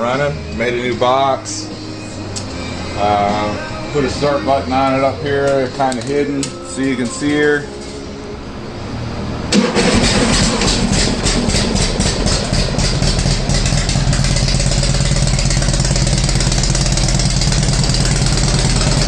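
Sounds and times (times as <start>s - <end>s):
motorcycle engine idling: 9.7s - 19.0s.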